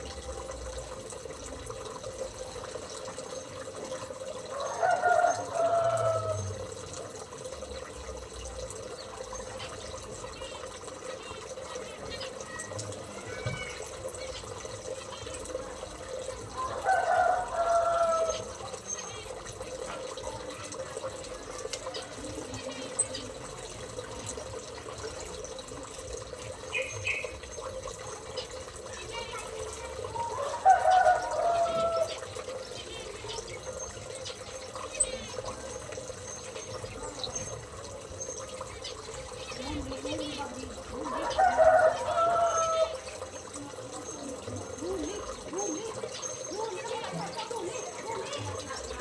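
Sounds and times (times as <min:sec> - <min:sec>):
running water: 0:00.0 - 0:49.0
rooster crowing: 0:04.5 - 0:06.6, 0:16.6 - 0:18.5, 0:30.3 - 0:32.2, 0:41.1 - 0:43.1
small birds chirping: 0:25.2 - 0:49.0
small birds chirping and whistling: 0:26.6 - 0:28.5.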